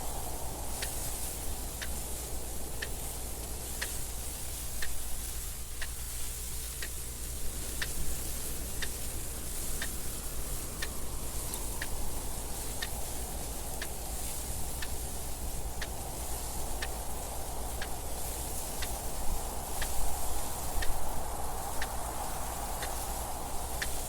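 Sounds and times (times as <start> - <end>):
wind noise: 0.0 - 24.0
clock ticking: 0.8 - 7.1, 7.7 - 18.0, 20.7 - 21.0.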